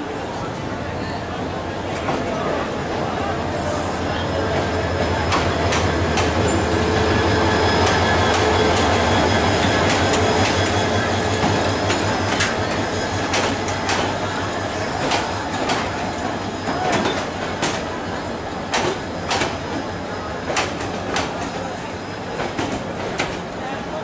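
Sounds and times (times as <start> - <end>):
locomotive engine hum: 1.5 - 23.9
train wheels clicking over rail joints: 4.5 - 23.6.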